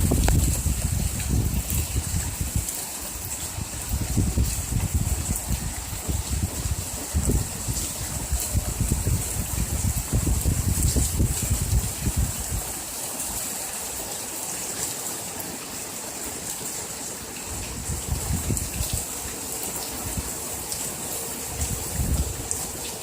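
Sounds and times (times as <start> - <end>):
wind buffeting microphone: 0.0 - 12.9, 17.5 - 20.4, 21.4 - 23.0
heavy rain pouring: 0.0 - 23.0
water rushing: 0.0 - 23.0.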